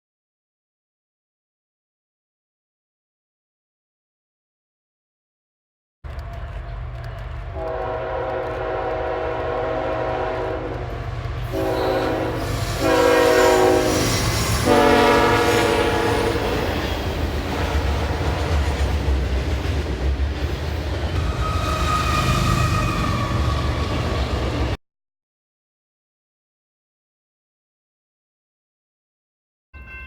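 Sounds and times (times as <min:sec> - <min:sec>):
train rumbling: 0:06.1 - 0:24.8
locomotive air horn blasts: 0:07.6 - 0:16.8, 0:17.5 - 0:18.3.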